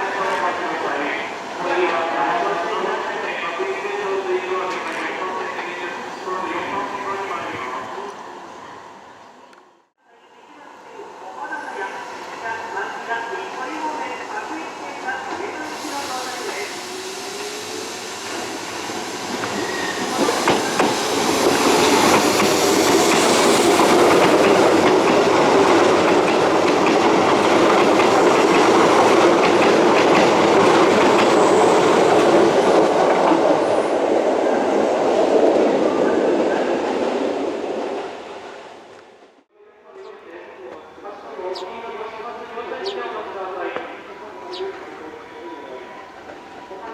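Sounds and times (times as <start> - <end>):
train wheels clattering on rails: 17.4 - 33.4.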